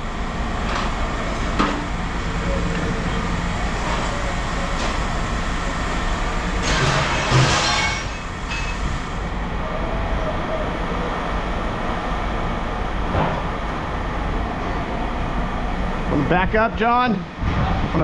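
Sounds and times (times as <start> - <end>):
heavy machinery rumbling: 0.0 - 18.0
metal scraping and screeching: 6.6 - 8.8.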